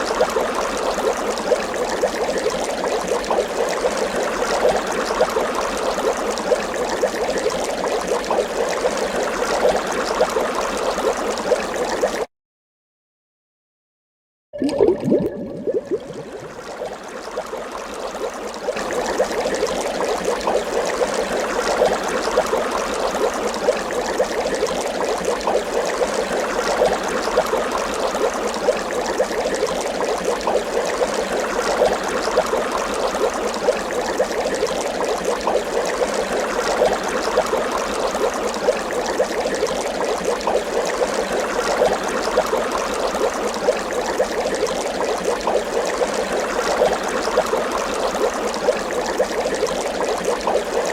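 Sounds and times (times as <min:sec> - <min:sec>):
water bubbling: 0:14.6 - 0:17.7.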